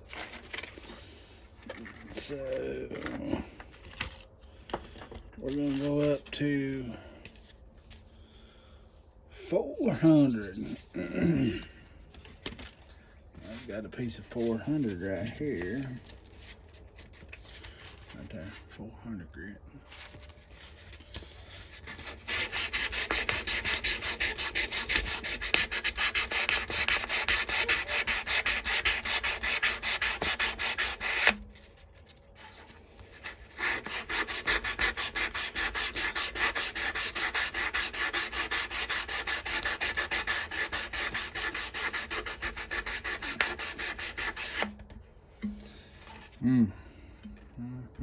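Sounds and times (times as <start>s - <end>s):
sandpaper strokes on knife blade: 20.5s - 31.7s, 32.4s - 44.7s.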